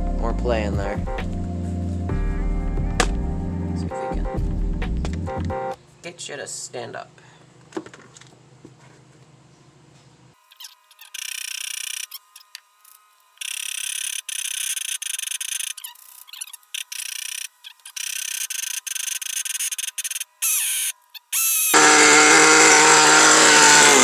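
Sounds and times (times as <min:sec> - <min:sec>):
model engine being cranked: 0:13.4 - 0:24.0.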